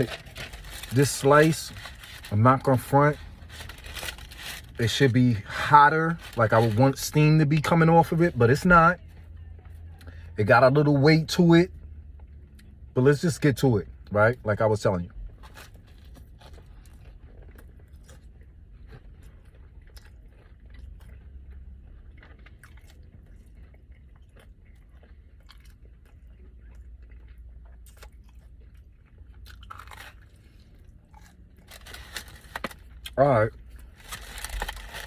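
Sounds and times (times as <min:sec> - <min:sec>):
chewing pizza crust: 0:15.0 - 0:35.0.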